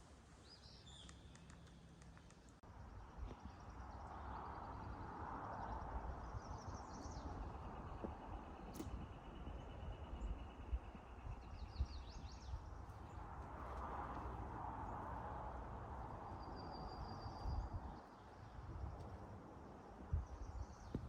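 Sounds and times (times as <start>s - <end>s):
steady low rumble: 5.5s - 21.0s.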